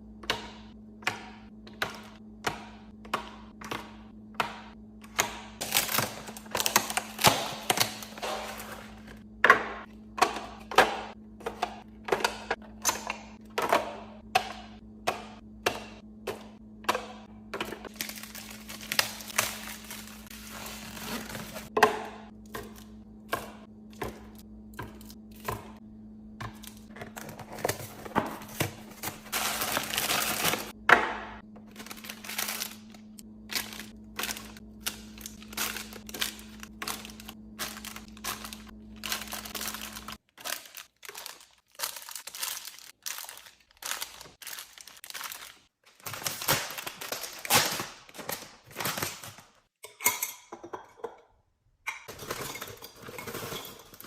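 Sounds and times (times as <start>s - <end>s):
steady low hum: 0.0s - 41.4s
plastic packaging crinkling: 17.9s - 21.7s, 26.6s - 30.7s, 31.6s - 49.5s.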